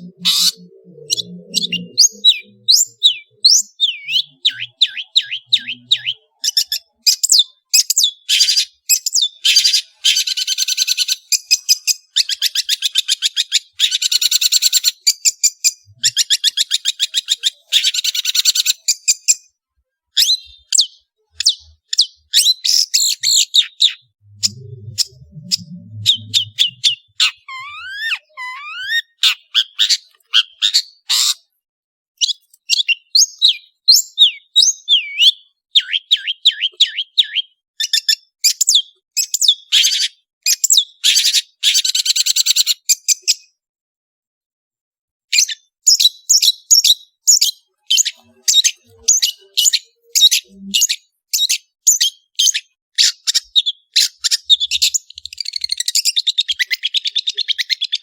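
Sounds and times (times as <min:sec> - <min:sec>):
shrike singing: 0:00.0 - 0:06.3, 0:23.0 - 0:29.1.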